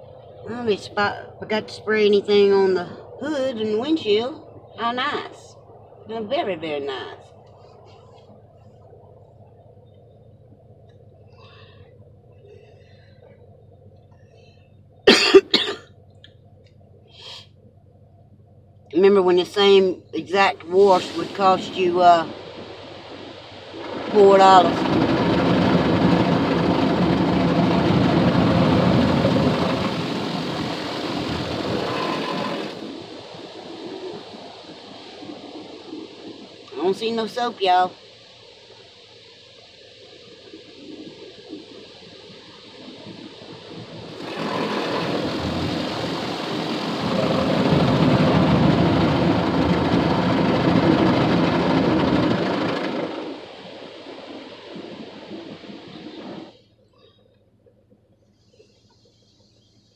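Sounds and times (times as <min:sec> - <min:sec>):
low machine hum: 0:00.0 - 0:36.4, 0:39.9 - 0:55.3
car wash water rushing: 0:20.7 - 0:36.7, 0:40.6 - 0:56.6.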